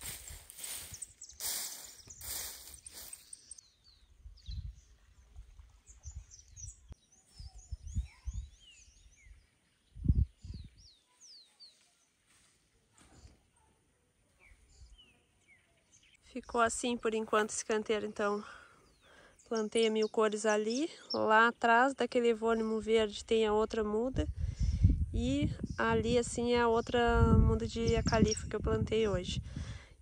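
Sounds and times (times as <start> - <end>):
rustling: 0.0 - 3.5
small birds chirping: 0.1 - 23.4, 24.5 - 29.1.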